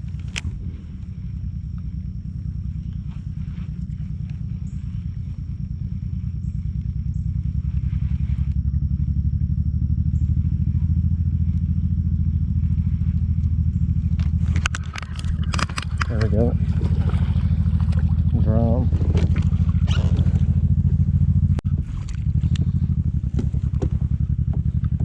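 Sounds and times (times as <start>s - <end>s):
motorboat engine running: 0.0s - 25.0s
sharp clicks: 13.4s - 16.4s.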